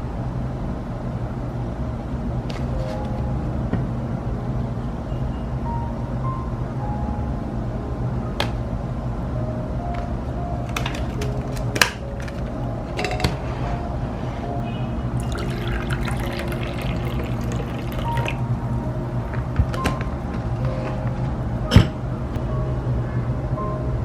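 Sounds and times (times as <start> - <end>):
soft background music: 1.8 - 24.0
liquid pouring into container: 15.2 - 18.7.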